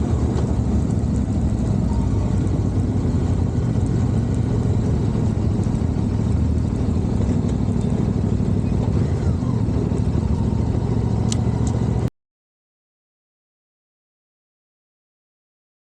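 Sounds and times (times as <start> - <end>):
motorcycle running: 0.0 - 12.1.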